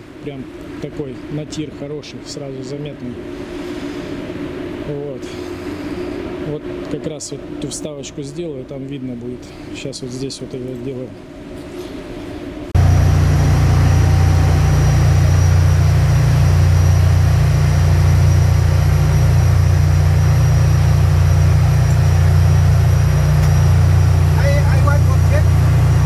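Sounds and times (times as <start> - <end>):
engine-room machinery drone: 12.8 - 26.0
faint high whine: 12.8 - 26.0.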